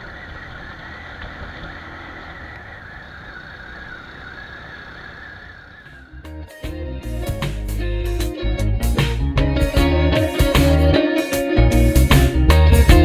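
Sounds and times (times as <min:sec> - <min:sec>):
motorcycle engine running: 0:00.0 - 0:10.9.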